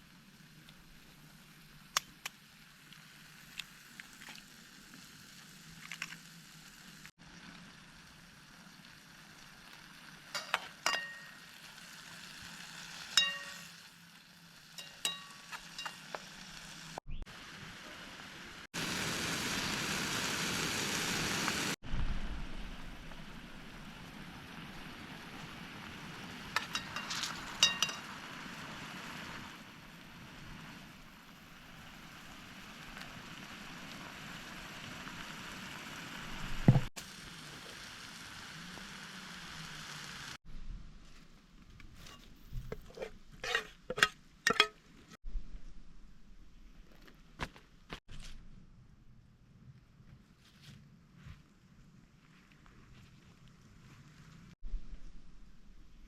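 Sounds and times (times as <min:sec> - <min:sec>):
food sizzling in a pan: 0:00.0 - 0:21.8, 0:23.0 - 0:40.4, 0:42.8 - 0:44.7
utensil clinking against pan: 0:10.4 - 0:11.4, 0:13.2 - 0:13.7, 0:14.8 - 0:16.0, 0:26.6 - 0:28.1, 0:42.8 - 0:44.8.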